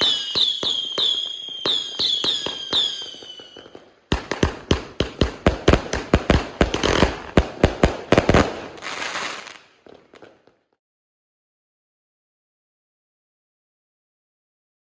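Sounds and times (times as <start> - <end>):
firework bangs: 0.0 - 10.4
firework crackling: 0.0 - 10.5.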